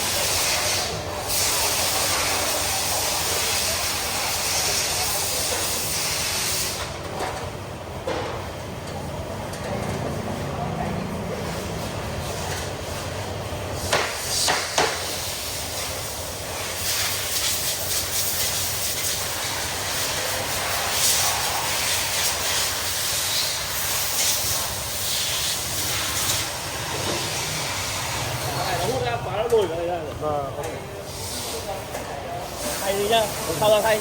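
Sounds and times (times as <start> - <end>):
steady hiss: 0.0 - 6.8, 13.8 - 29.2, 31.0 - 34.0.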